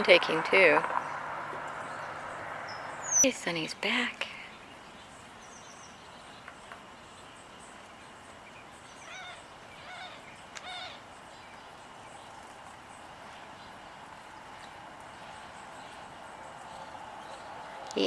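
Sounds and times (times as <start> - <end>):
bird calling: 0.0 - 3.7, 8.4 - 18.0
outdoor background noise: 0.0 - 18.0.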